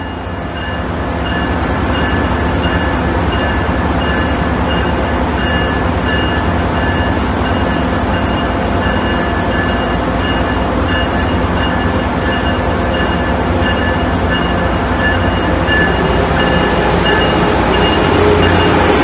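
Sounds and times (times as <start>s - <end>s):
electric train rumble and hum: 0.0s - 19.0s
high pulsing tone: 13.7s - 19.0s.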